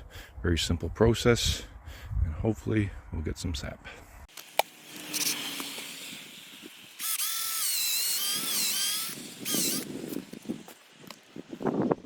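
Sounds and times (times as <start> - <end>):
cordless drill whining into wood: 4.3 - 11.3.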